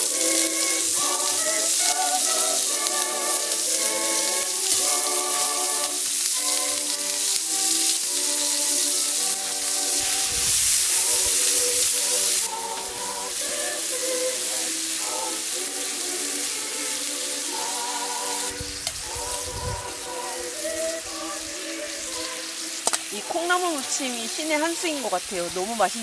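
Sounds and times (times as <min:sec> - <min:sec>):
background music: 0:00.0 - 0:26.0
meat sizzling on grill: 0:00.0 - 0:26.0.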